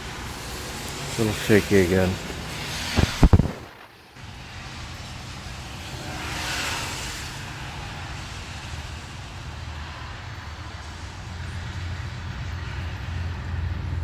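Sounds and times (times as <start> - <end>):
drizzle hiss: 0.1 - 9.5.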